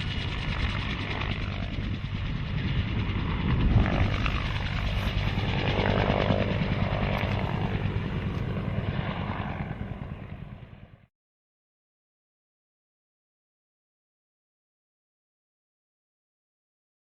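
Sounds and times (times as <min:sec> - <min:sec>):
helicopter rotor chopping: 0:00.0 - 0:11.0.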